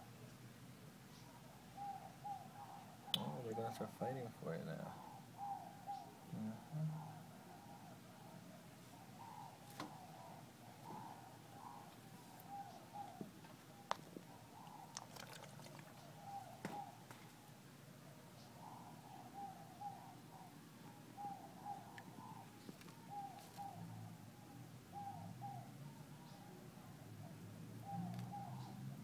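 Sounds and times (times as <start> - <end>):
bird cooing: 1.1 - 29.0.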